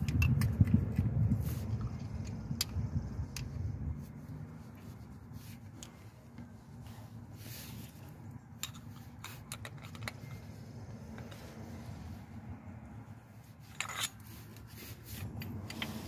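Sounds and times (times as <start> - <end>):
scraping rustle: 3.9 - 16.0
small metal parts clicking: 8.5 - 10.4, 13.7 - 16.0.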